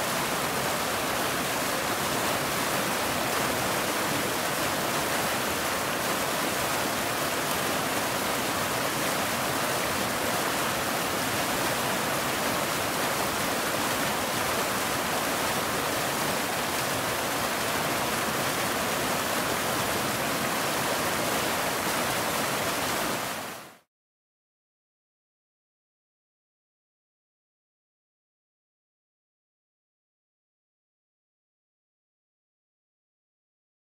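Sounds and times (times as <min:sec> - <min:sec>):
waterfall rushing: 0:00.0 - 0:23.8.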